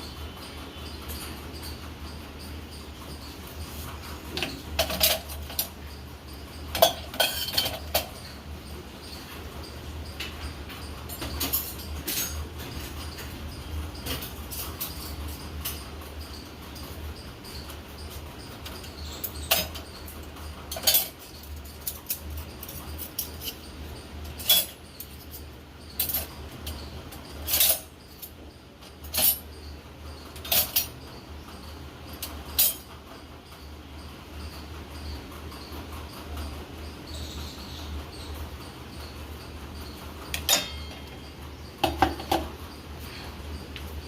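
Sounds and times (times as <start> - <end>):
steady low hum: 0.0 - 44.0
dishes and cutlery clinking: 3.7 - 5.8, 6.6 - 8.4, 20.7 - 23.6, 30.3 - 31.0, 40.3 - 42.6.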